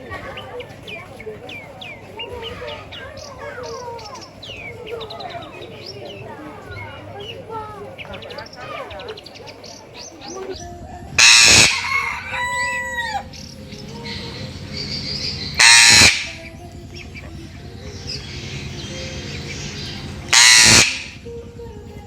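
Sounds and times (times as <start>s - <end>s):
loud animal cries: 11.2s - 13.4s, 14.1s - 16.4s, 18.0s - 21.2s.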